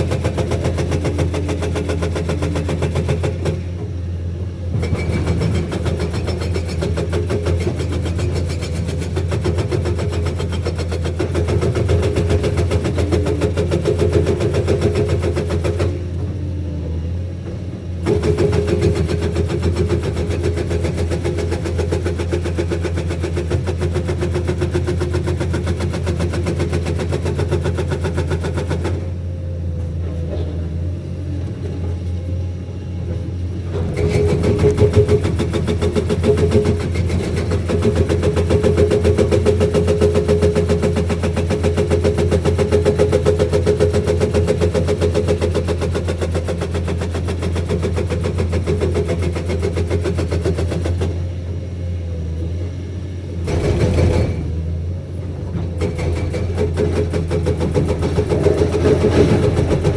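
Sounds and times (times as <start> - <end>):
hydraulic breaker hammering: 0.0 - 4.0, 4.7 - 16.4, 17.4 - 30.5, 33.0 - 51.3, 53.4 - 54.6, 55.5 - 59.9
diesel engine running: 0.0 - 59.9.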